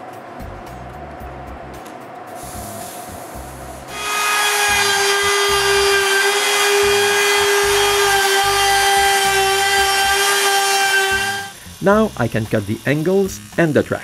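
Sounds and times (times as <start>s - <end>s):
router whining: 3.9s - 14.0s.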